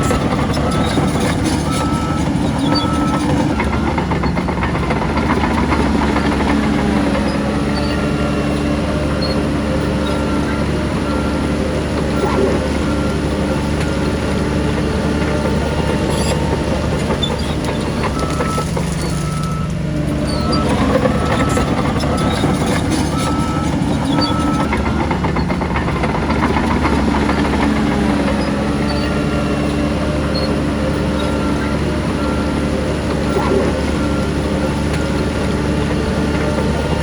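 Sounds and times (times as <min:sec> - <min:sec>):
diesel machinery running: 0:00.0 - 0:37.0.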